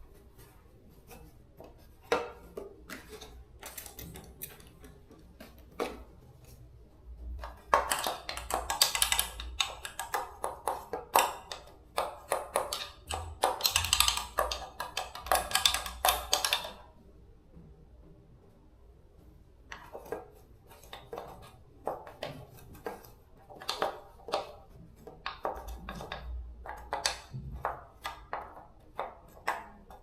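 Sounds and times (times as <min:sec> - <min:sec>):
hand tool taps and scrapes: 0:00.4 - 0:06.6, 0:19.7 - 0:30.0.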